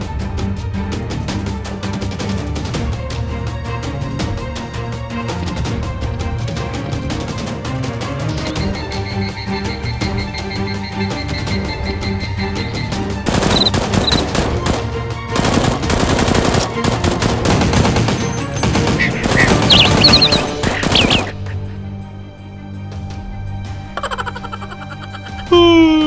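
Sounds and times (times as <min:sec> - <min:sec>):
background music: 0:00.0 - 0:26.0
automatic gunfire: 0:13.3 - 0:21.3.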